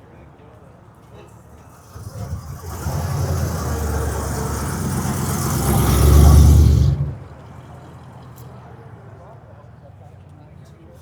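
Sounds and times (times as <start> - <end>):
car engine with deep exhaust rumble: 1.7 - 7.3.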